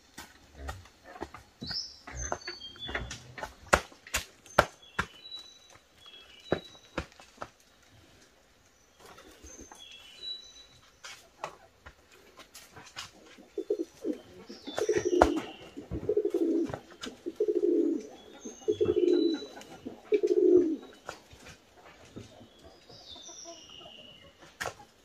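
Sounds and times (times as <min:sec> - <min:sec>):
bird cooing: 0:13.4 - 0:20.9.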